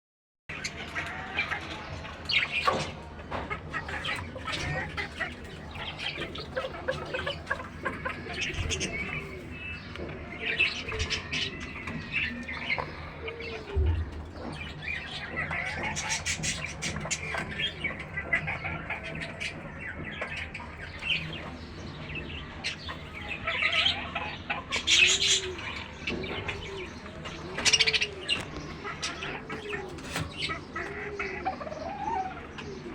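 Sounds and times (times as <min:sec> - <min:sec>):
birds chirping: 0:00.5 - 0:32.9
birds cooing: 0:00.5 - 0:32.9.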